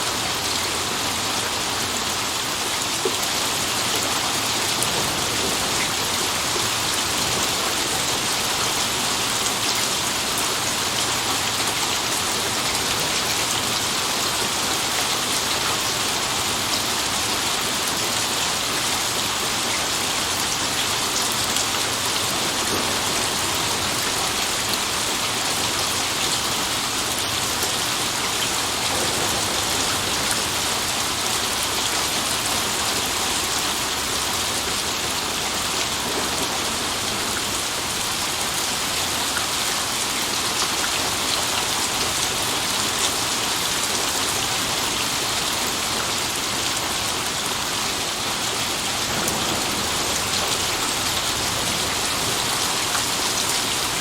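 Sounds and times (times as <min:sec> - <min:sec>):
heavy rain pattering: 0:00.0 - 0:54.0.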